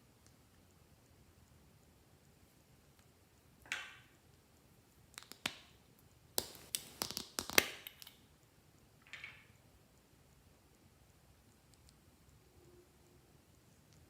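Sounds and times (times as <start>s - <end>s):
slime squishing: 6.4s - 8.0s.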